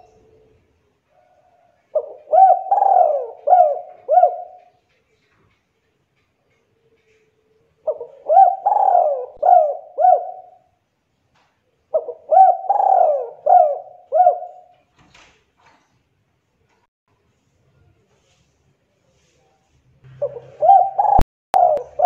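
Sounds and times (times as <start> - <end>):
dove cooing: 1.2 - 4.9, 7.8 - 10.8, 11.9 - 14.7, 20.2 - 22.0.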